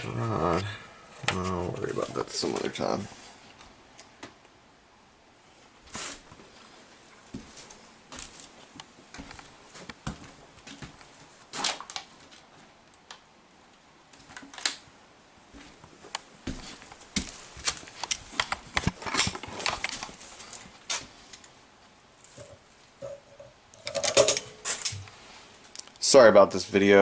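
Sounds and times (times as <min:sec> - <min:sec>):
clatter of plumbing parts and tools: 0:17.9 - 0:21.5, 0:22.3 - 0:25.0.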